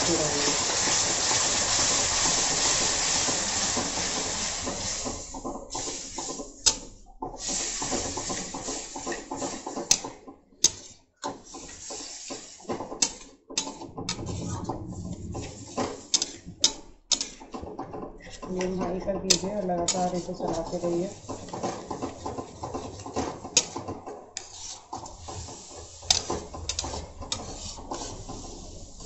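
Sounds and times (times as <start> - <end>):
food sizzling in a hot pan: 0.0 - 6.2
metal spatula scraping a pan: 10.6 - 14.7, 15.3 - 17.6, 18.2 - 29.0.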